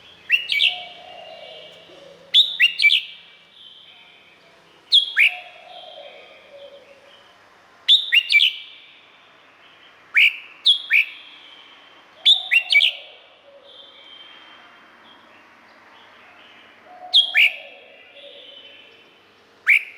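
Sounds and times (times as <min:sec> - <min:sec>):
bird singing sharp whistled notes: 0:00.3 - 0:01.0, 0:02.4 - 0:03.9, 0:04.9 - 0:05.6, 0:07.9 - 0:08.8, 0:10.2 - 0:11.4, 0:12.2 - 0:13.0, 0:19.6 - 0:19.9
faint bird whistles: 0:00.3 - 0:03.2, 0:07.9 - 0:08.8, 0:10.2 - 0:11.4, 0:12.2 - 0:14.6, 0:19.6 - 0:19.9.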